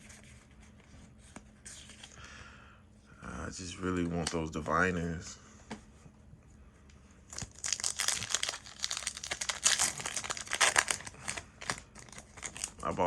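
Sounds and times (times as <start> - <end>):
foil wrapper crinkling: 7.3 - 13.0.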